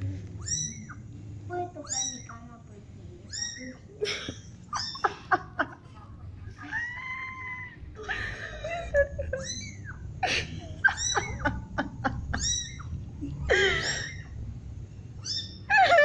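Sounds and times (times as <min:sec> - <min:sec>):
high-pitched mewing cries: 0:00.4 - 0:01.1, 0:01.8 - 0:02.5, 0:03.2 - 0:03.8, 0:04.7 - 0:05.2, 0:06.6 - 0:08.0, 0:09.2 - 0:10.2, 0:10.8 - 0:14.4, 0:15.2 - 0:16.0.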